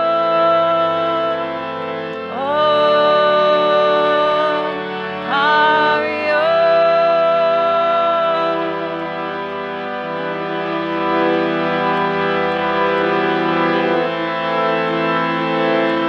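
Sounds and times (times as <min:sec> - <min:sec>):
person chanting: 0:00.0 - 0:09.8
harmonium chords: 0:00.0 - 0:16.0.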